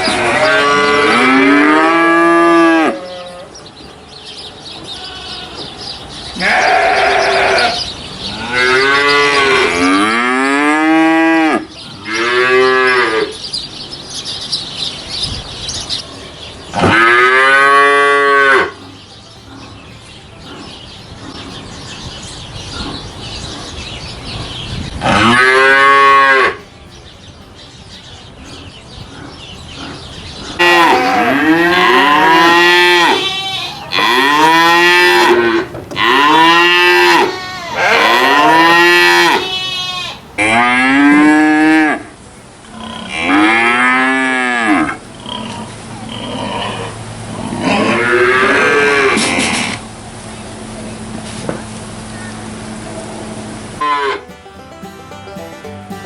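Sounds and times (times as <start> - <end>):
cattle mooing: 0.0 - 3.6, 6.4 - 13.4, 30.6 - 42.1, 42.8 - 49.8, 53.8 - 54.3.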